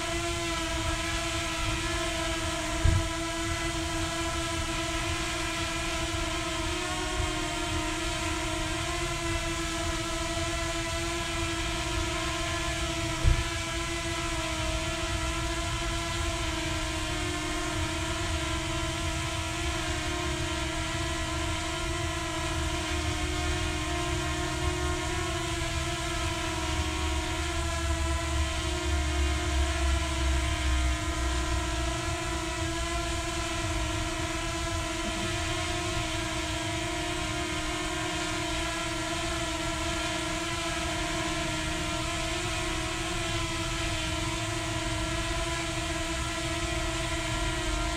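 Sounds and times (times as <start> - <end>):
drone propellers whirring: 0.0 - 47.9
brief thump: 2.8 - 3.0.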